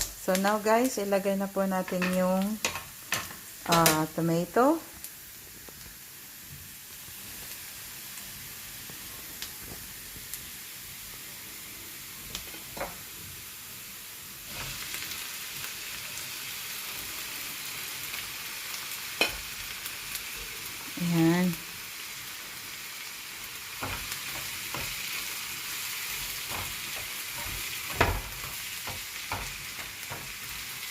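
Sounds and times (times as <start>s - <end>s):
onion and garlic sizzling in oil: 0.0s - 30.9s.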